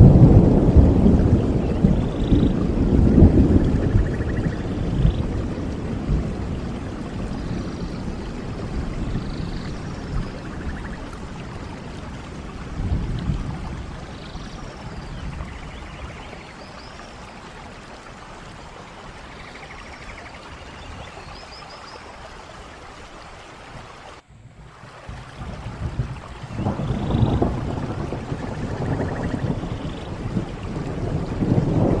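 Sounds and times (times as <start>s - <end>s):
rain falling: 0.0s - 32.0s
low rumbles: 24.2s - 32.0s.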